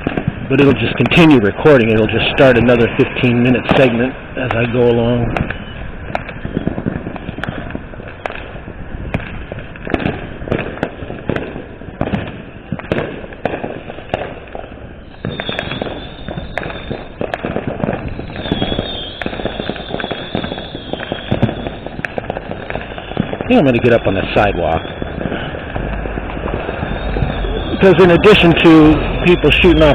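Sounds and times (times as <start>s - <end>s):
fireworks popping and banging: 0.0s - 29.9s
high wavering firework whistle: 0.0s - 29.9s.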